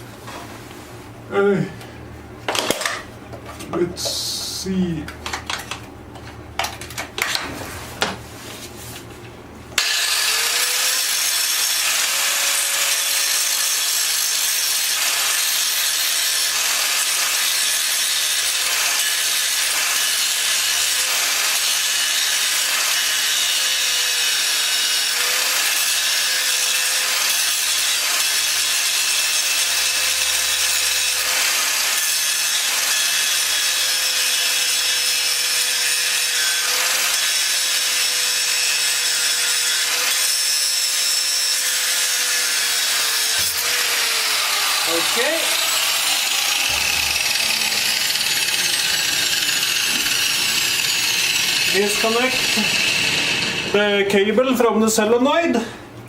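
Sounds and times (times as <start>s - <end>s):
power tool whining: 9.8s - 54.1s.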